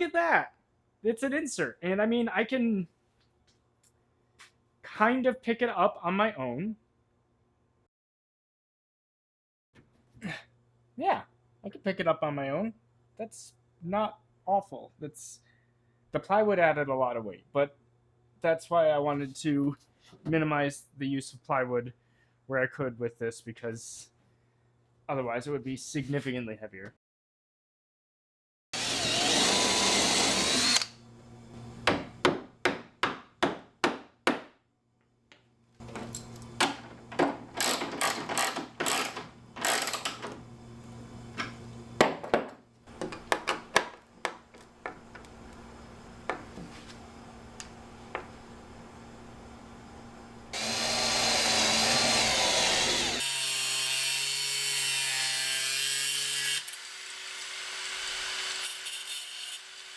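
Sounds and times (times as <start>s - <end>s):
power tools running: 28.8s - 31.0s, 37.6s - 40.4s, 50.5s - 53.7s.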